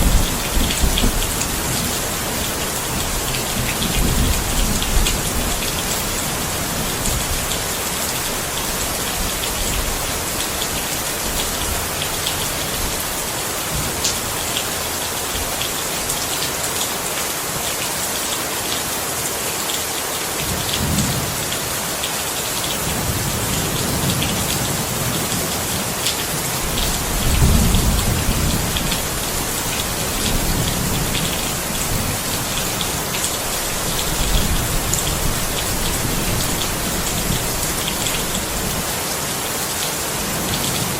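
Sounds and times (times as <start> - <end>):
thunder rumbles: 0.0 - 7.4, 26.6 - 38.7
steady rain falling: 0.0 - 40.9.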